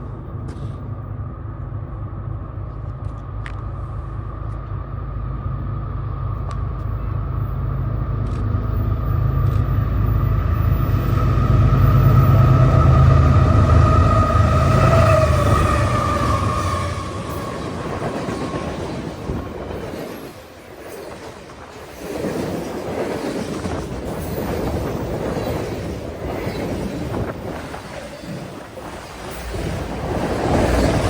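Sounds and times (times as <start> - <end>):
train rumbling past on rails: 0.0 - 31.0
train horn: 11.7 - 17.8.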